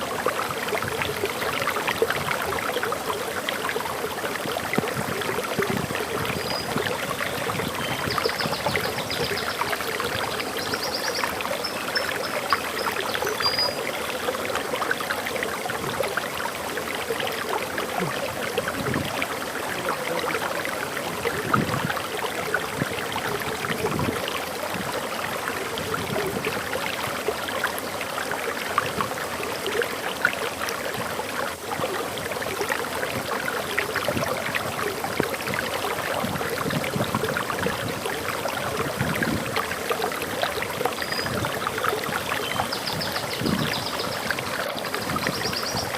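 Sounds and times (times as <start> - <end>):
waterfall rushing: 0.0 - 45.9
bird chirp: 10.6 - 13.8.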